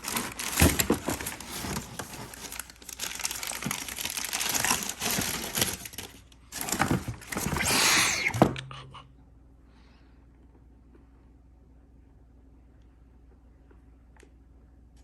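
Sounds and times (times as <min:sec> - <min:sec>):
packaging crinkling: 0:00.0 - 0:08.3.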